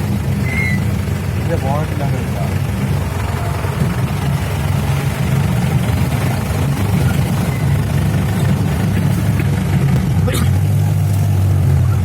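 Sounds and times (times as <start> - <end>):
vehicle engine low drone: 0.0 - 12.0.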